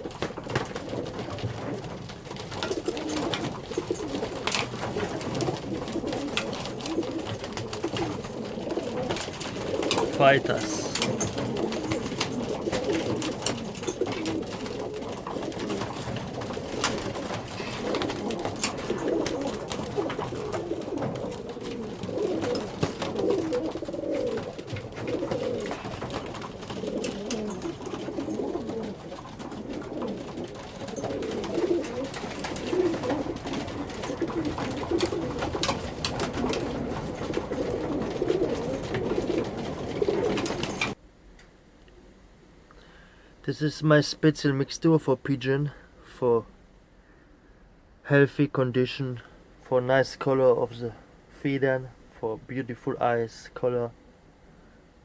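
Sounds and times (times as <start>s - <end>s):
pigeons cooing: 0.0s - 41.0s.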